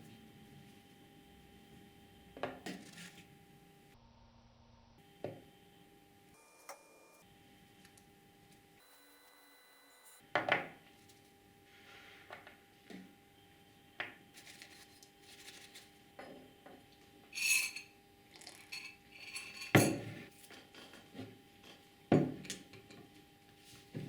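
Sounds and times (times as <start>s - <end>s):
metal tools clinking and rattling: 18.7s - 20.2s.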